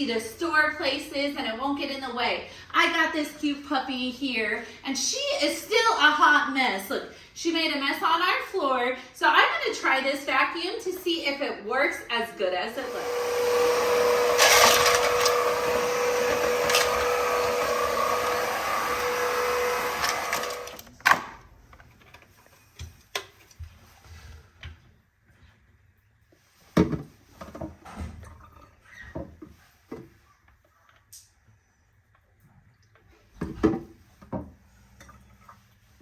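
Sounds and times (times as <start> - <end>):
vacuum cleaner whining: 12.7 - 20.9.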